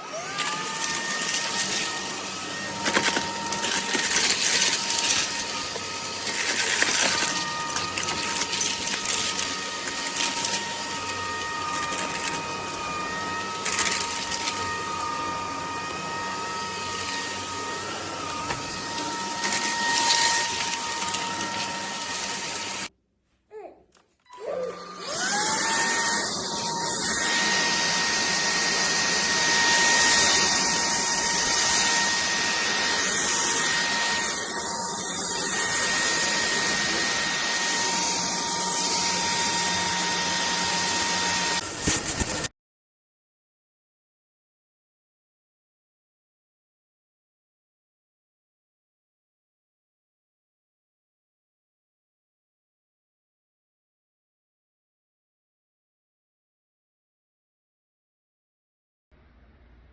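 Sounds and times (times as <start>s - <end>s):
stick vacuum motor whine: 0.0s - 22.9s, 24.3s - 42.5s.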